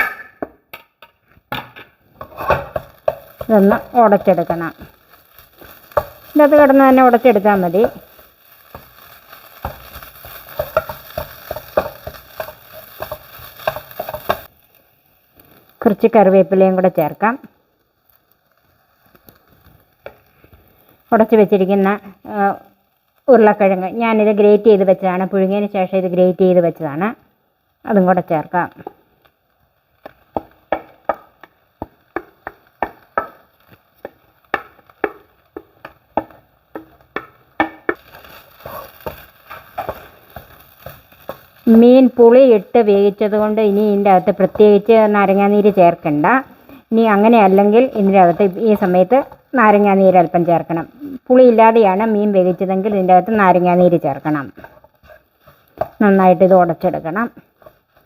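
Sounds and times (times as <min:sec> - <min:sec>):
utensil tapping and scraping a pan: 0:00.0 - 0:14.8, 0:19.0 - 0:20.9, 0:30.0 - 0:42.2, 0:43.2 - 0:50.8, 0:51.8 - 0:58.0
utensil knocking against a pan: 0:34.5 - 0:38.0.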